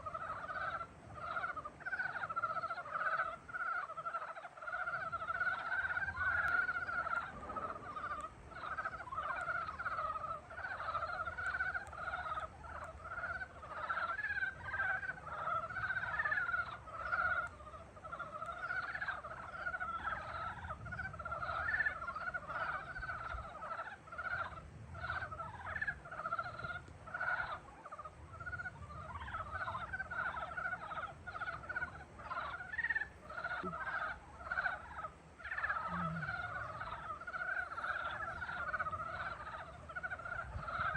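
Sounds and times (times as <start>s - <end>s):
chorus of frogs calling: 0.0s - 40.9s.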